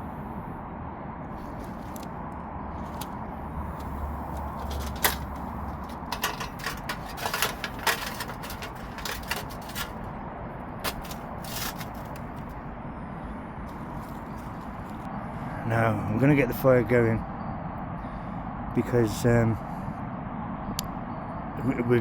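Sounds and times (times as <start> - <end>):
camping kit clicks and knocks: 1.4 - 2.1, 2.8 - 10.1, 10.8 - 12.6, 13.7 - 15.1.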